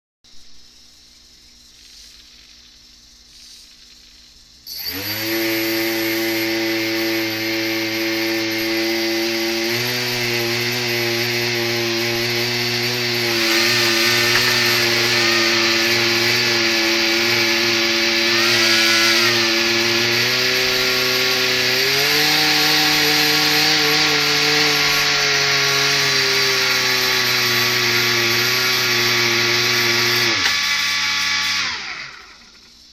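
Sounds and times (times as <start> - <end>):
hovercraft motors buzzing: 4.7 - 25.2.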